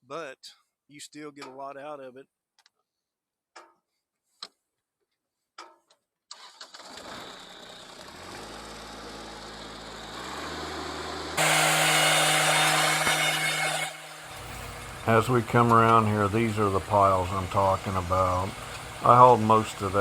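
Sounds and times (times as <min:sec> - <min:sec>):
vehicle engine running: 0:07.4 - 0:20.0.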